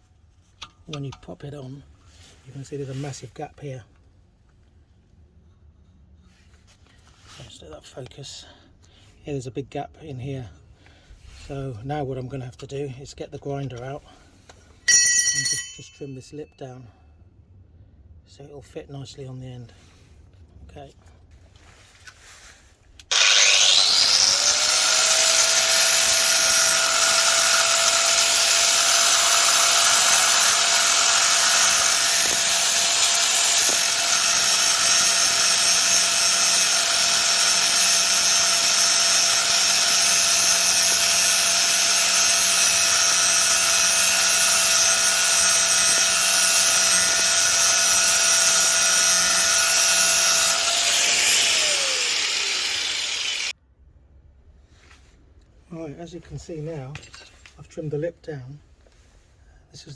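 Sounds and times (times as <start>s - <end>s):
angle grinder cutting metal: 23.1s - 53.5s.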